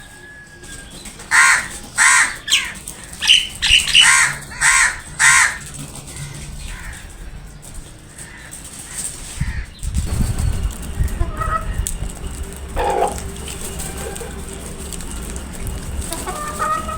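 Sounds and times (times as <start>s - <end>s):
crows cawing: 1.2s - 9.8s, 12.8s - 16.9s
low rumble: 9.6s - 16.9s.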